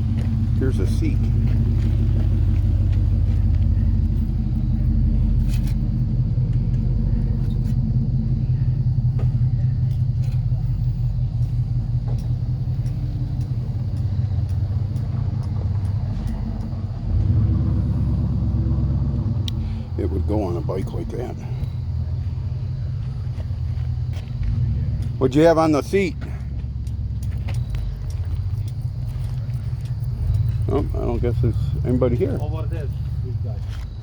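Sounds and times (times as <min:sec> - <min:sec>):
low engine-like rumble with hum: 0:00.0 - 0:34.0.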